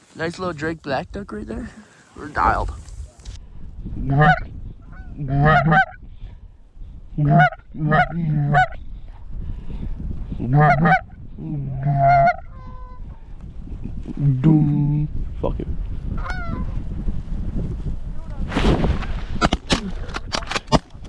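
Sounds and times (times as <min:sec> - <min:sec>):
low rumble of wind: 0:00.0 - 0:21.0
goose honking: 0:04.1 - 0:06.0, 0:07.2 - 0:08.8, 0:11.9 - 0:12.5.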